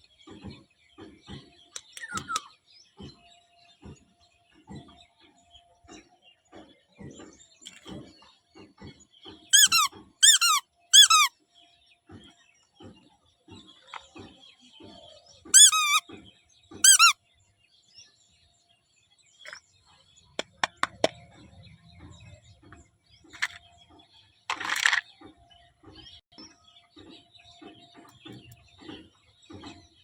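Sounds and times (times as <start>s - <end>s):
sharp clicks: 1.8s - 2.4s
toy squeaks with wavering pitch: 1.8s - 2.4s, 9.5s - 11.3s, 15.5s - 16.0s, 16.8s - 17.2s.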